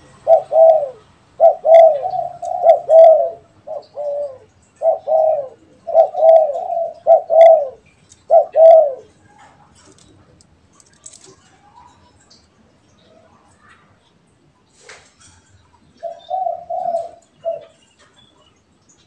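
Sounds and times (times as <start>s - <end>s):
doves cooing: 0.0s - 12.0s, 15.9s - 18.2s.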